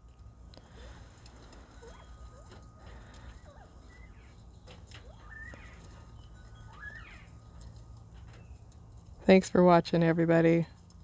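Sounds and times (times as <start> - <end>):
quail chirping calls: 0.8 - 8.4.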